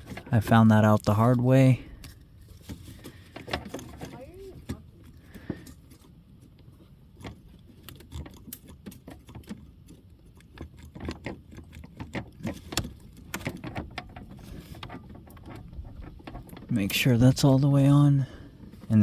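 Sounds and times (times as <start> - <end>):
plastic parts clicking and knocking: 2.0 - 5.8, 7.2 - 17.1.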